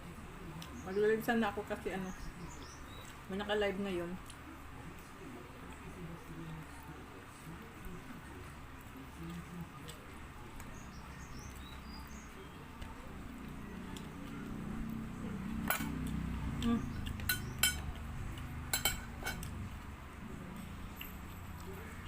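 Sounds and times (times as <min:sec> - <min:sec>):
utensils clinking on plate: 0:15.6 - 0:16.0, 0:17.1 - 0:18.0, 0:18.7 - 0:19.5.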